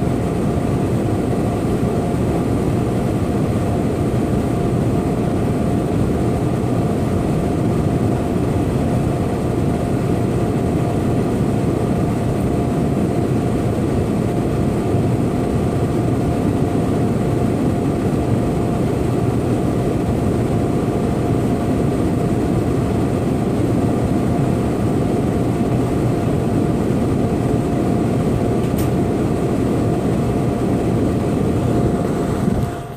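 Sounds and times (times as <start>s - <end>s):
constant hum: 0.0s - 32.9s
sharp click: 28.6s - 29.0s.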